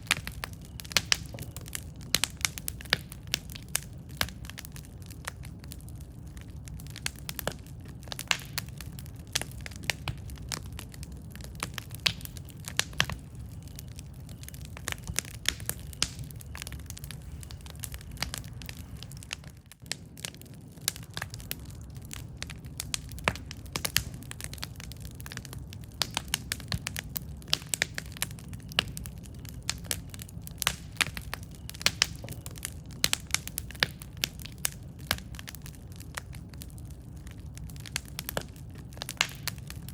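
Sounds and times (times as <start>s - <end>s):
campfire crackling and popping: 0.0s - 39.9s
low rumble of burning fire: 0.0s - 39.9s.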